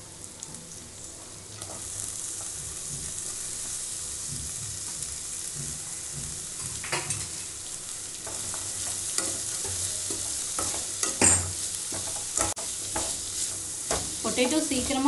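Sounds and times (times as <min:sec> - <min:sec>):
vegetables sizzling in oil: 0:00.0 - 0:15.0
spatula stirring and scraping: 0:08.1 - 0:15.0.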